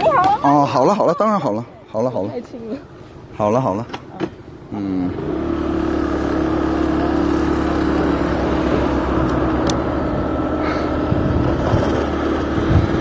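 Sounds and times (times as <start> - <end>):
road and air rush: 1.4 - 13.0
vehicle engine running: 4.5 - 13.0.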